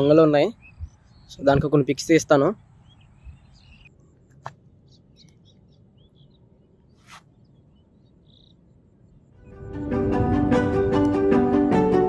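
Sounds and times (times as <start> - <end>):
faint bird chirps: 0.0 - 1.7, 2.5 - 9.4.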